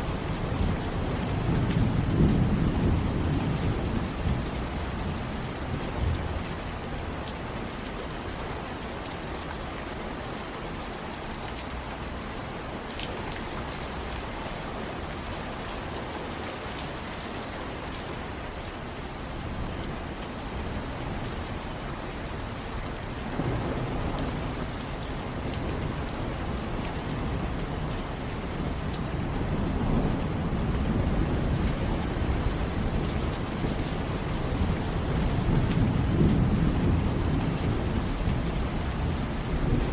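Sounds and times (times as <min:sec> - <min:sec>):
rain falling: 0:00.0 - 0:39.9
raindrops ticking on surface: 0:00.0 - 0:39.9
low rolling thunder: 0:00.2 - 0:05.4, 0:23.2 - 0:27.9, 0:34.1 - 0:39.9.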